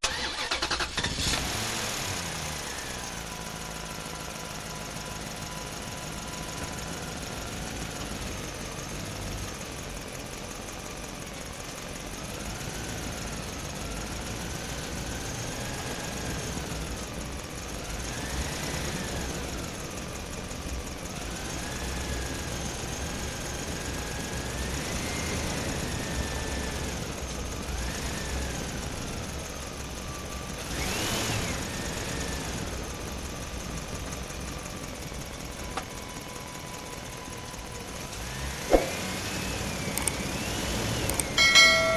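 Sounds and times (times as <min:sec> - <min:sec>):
engine revving: 0:00.0 - 0:03.9, 0:17.8 - 0:19.6, 0:30.5 - 0:32.9, 0:38.1 - 0:41.9.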